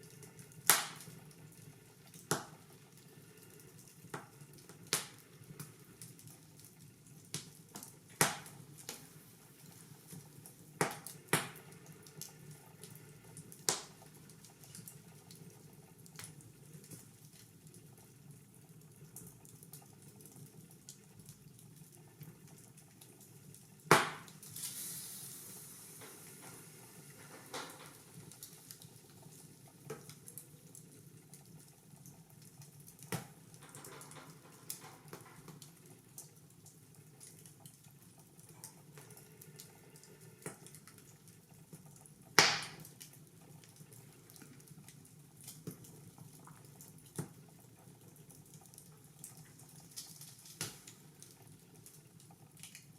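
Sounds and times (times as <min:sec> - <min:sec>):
wood fire crackling: 0:00.0 - 0:52.9
loud fire pops: 0:00.6 - 0:01.1, 0:13.6 - 0:14.0, 0:23.9 - 0:25.2, 0:42.4 - 0:42.9
short hiss: 0:24.4 - 0:27.5.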